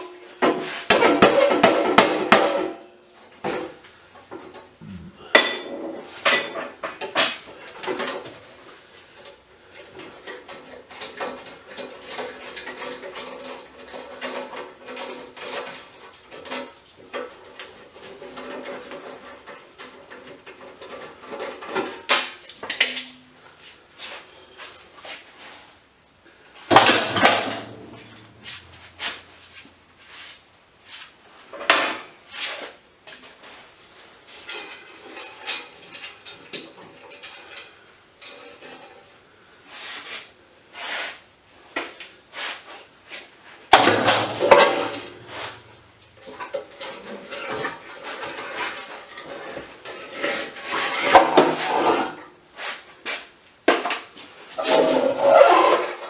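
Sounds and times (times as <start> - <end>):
metal rattling: 26.7 - 29.6, 43.7 - 47.5
scrap metal clanking: 26.7 - 29.8, 43.7 - 52.2, 54.5 - 56.0.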